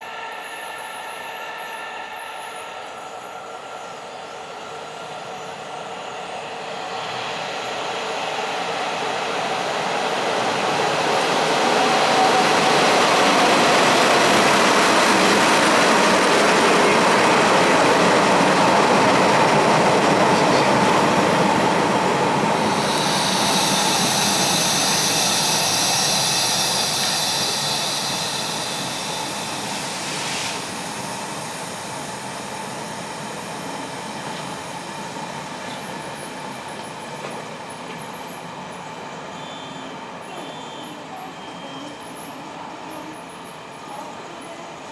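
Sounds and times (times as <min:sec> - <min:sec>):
high-pitched wheel squeal: 0:00.0 - 0:04.4, 0:22.6 - 0:30.1
train wheels rumbling on rails: 0:04.6 - 0:44.8.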